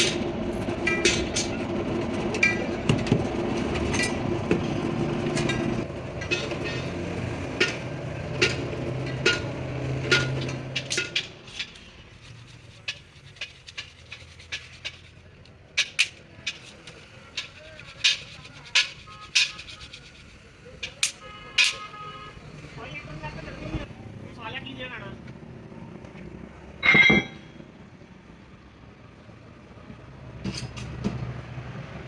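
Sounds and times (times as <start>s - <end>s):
metal clinks and taps: 26.8s - 27.5s.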